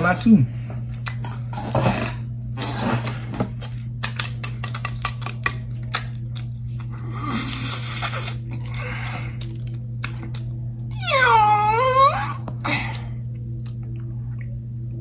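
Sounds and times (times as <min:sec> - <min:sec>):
low hum: 0:00.0 - 0:15.0
fries crunching while chewed: 0:01.0 - 0:11.0.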